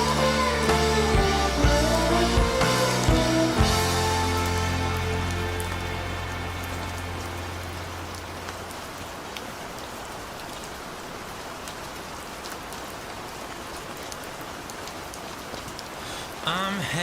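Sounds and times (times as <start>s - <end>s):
low bass note of song: 0.0s - 8.5s
rain falling: 0.0s - 17.0s.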